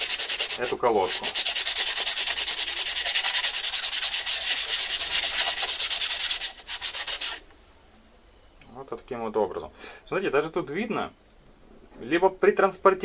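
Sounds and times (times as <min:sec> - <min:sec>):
brake pad rubbed on sandpaper: 0:00.0 - 0:07.4.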